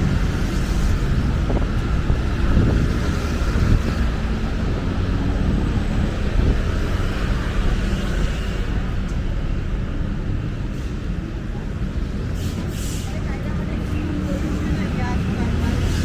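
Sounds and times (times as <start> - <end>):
wind on microphone: 0.0 - 8.7
city road traffic rumble: 0.0 - 16.0.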